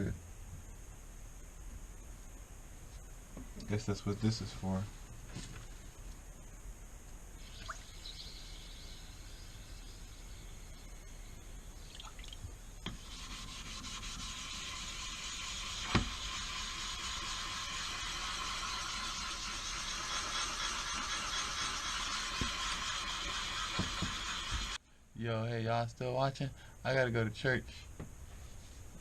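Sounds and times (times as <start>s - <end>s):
knife scraping on whetstone: 12.9s - 24.8s.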